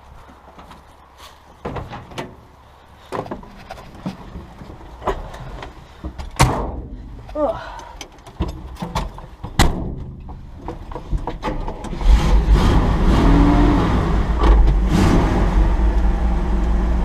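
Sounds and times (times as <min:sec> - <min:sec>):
clicks and knocks: 0:07.8 - 0:12.0
pickup truck engine pulling away: 0:12.0 - 0:17.0.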